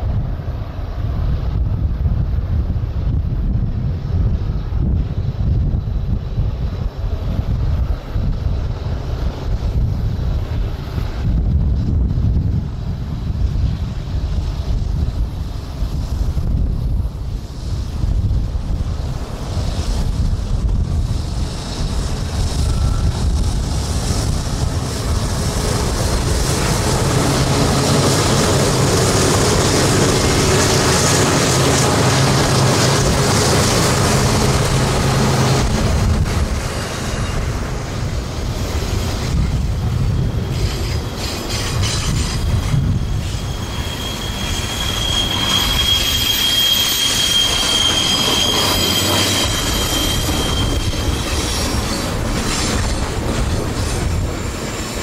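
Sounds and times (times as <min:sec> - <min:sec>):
diesel locomotive engines droning: 0:00.0 - 0:55.0
train wheels squealing: 0:19.0 - 0:55.0.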